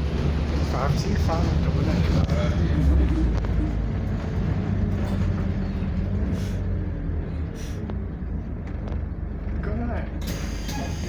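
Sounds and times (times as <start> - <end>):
bus engine humming: 0.0 - 11.0
short air hisses: 10.3 - 11.0.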